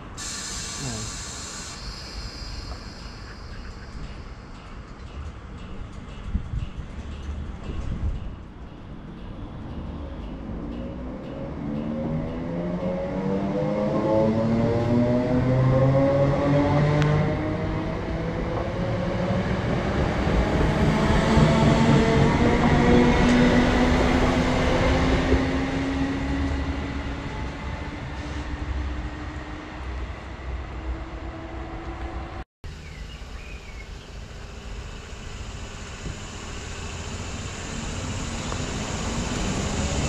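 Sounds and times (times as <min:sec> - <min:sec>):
quiet electric train rumble: 0:00.0 - 0:40.0
train wheels rumbling on rails: 0:00.0 - 0:40.0
train motor whine: 0:33.2 - 0:40.0.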